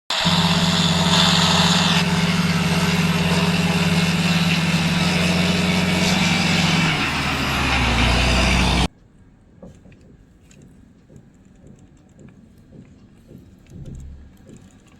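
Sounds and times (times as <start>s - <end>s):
truck engine running: 0.1s - 8.9s.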